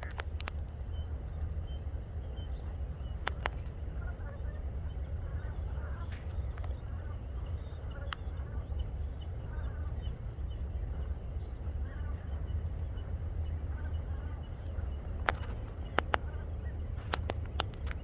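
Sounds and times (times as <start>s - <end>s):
sharp clicks: 0.0s - 0.8s, 3.2s - 3.7s, 17.0s - 18.0s
faint bird calls: 0.0s - 18.0s
steady low rumble: 0.0s - 18.0s.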